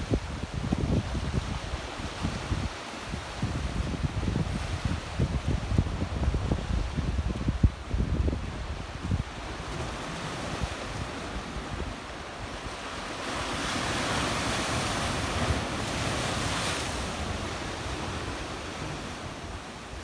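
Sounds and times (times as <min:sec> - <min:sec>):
wind buffeting microphone: 0:00.0 - 0:12.6
waves splashing on rocky shore: 0:09.0 - 0:20.0.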